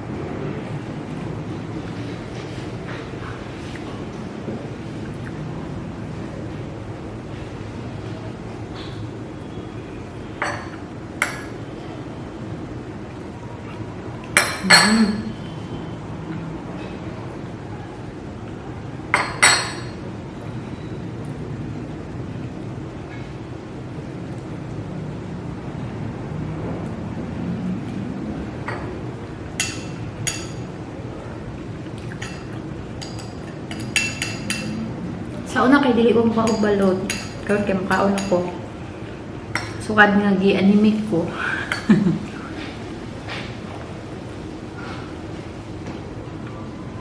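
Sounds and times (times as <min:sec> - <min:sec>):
utensils clinking on dishes: 0:14.3 - 0:15.5, 0:19.1 - 0:20.0, 0:29.6 - 0:30.7, 0:32.0 - 0:34.9, 0:36.3 - 0:38.7
cutlery clinking against a dish: 0:14.4 - 0:15.3, 0:32.1 - 0:34.8.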